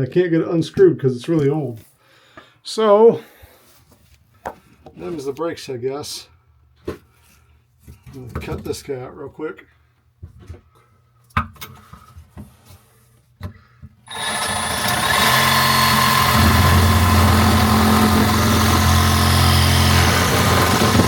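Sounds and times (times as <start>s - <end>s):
reciprocating saw cutting metal: 14.1s - 21.0s.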